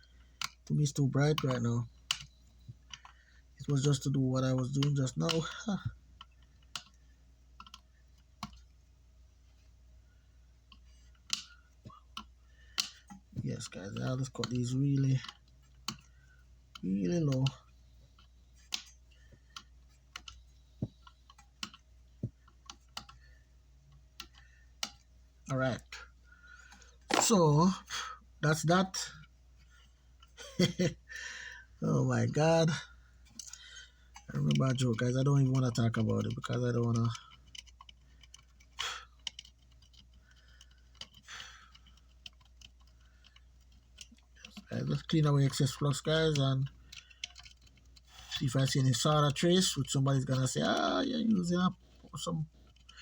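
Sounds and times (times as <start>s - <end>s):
small hand tools clicking and tapping: 0.0s - 7.0s, 7.6s - 8.6s, 10.7s - 25.1s, 33.3s - 53.0s
faint steady hum: 0.0s - 53.0s.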